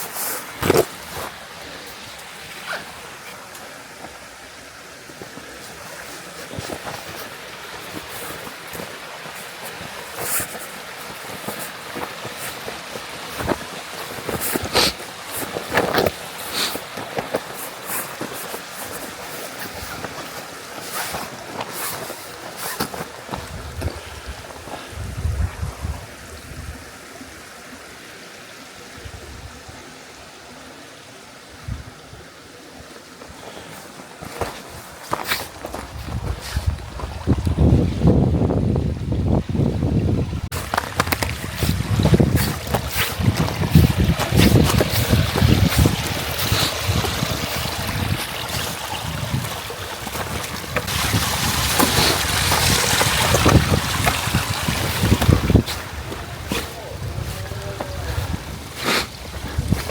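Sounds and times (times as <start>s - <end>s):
stream water rushing: 0.0s - 59.9s
wind buffeting microphone: 23.3s - 26.9s, 35.1s - 59.9s.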